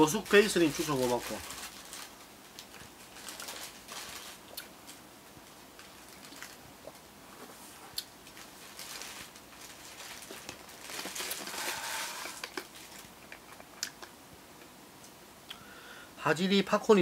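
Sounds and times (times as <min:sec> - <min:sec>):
paper wrapper rustling: 0:00.0 - 0:06.6, 0:08.2 - 0:13.3.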